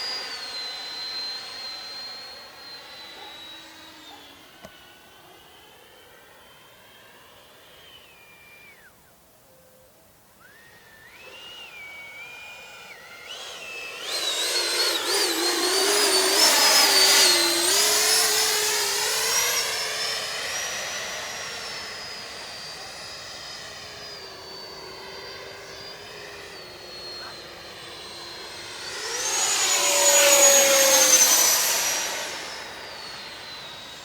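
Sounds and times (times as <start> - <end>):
electric ducted fan whining: 10.4 - 22.2, 24.0 - 34.0.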